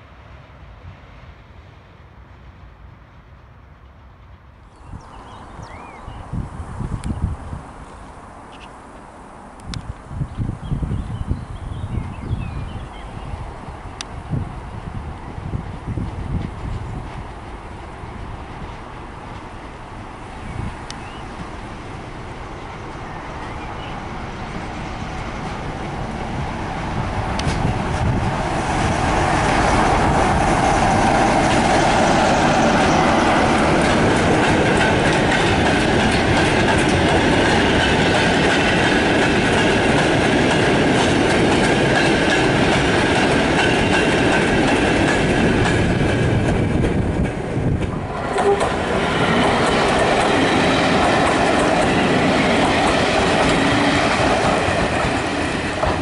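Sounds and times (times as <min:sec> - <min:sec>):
passenger train passing: 0:00.0 - 0:56.0
goods train wheels clattering: 0:15.7 - 0:56.0.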